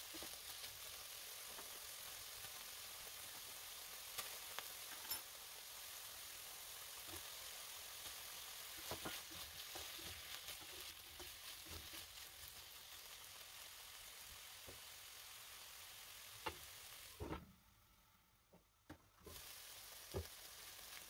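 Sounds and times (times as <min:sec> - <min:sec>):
food sizzling in a pan: 0:00.0 - 0:17.4, 0:19.0 - 0:21.0
stirring knocks in pan: 0:08.7 - 0:12.2.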